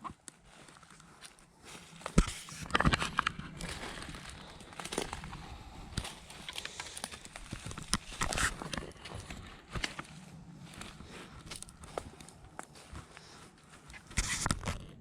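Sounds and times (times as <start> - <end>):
footsteps crunching dry leaves: 0.4 - 14.4
twig snapping: 2.0 - 9.2.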